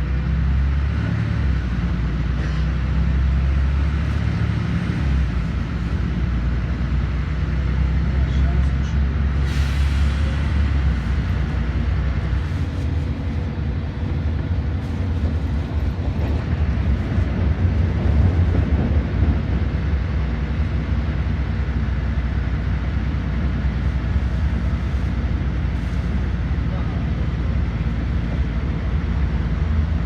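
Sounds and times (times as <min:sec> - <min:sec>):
bus engine and road rumble: 0:00.0 - 0:30.0.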